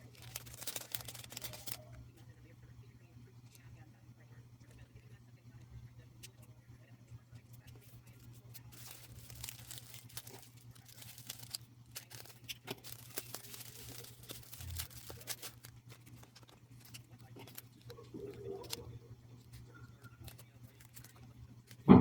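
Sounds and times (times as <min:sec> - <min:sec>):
plastic and paper crinkling: 0:00.0 - 0:02.0, 0:07.3 - 0:21.9
steady low hum: 0:00.0 - 0:22.0.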